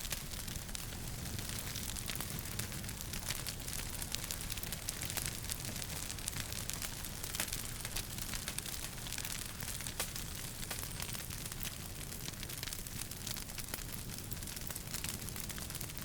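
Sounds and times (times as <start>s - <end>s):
fire low rumble and hiss: 0.0s - 16.0s
wood fire pops and snaps: 0.0s - 16.0s.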